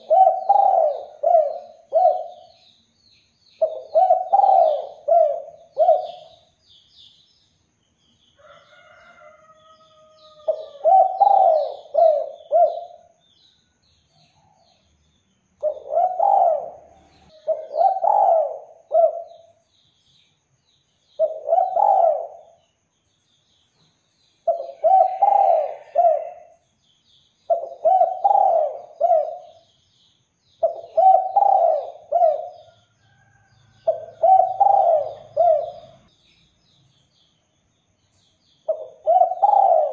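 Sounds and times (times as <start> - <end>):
dove cooing: 0.0 - 2.5, 3.6 - 6.5, 10.3 - 13.2, 15.6 - 19.6, 21.2 - 22.6, 24.4 - 26.6, 27.5 - 29.6, 30.6 - 32.8, 33.8 - 36.1, 38.7 - 39.9
small birds chirping: 0.0 - 39.9.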